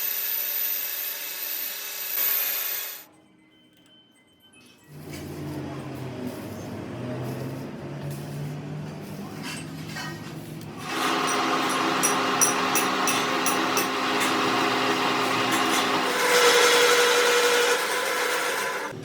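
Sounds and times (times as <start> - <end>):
power tool running: 0.0 - 3.0, 10.8 - 19.0.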